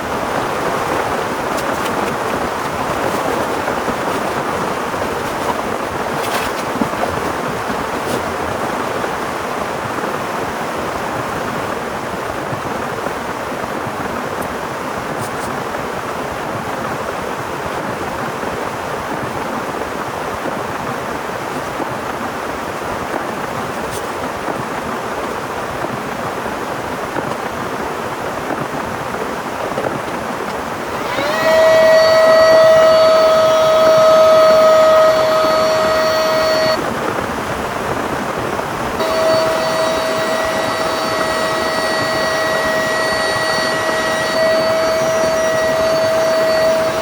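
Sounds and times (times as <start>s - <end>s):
steady humming tone: 0.0s - 9.3s, 30.7s - 37.0s, 38.9s - 47.0s
heavy rain falling: 0.0s - 15.2s.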